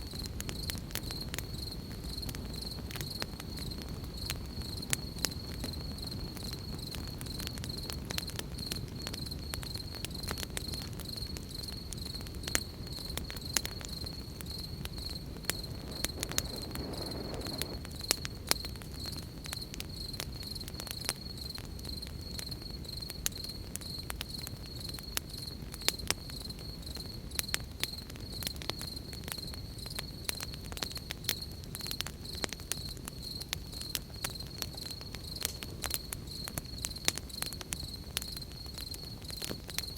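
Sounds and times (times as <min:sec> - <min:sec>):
campfire crackling: 0:00.0 - 0:39.9
crickets chirping: 0:00.0 - 0:39.9.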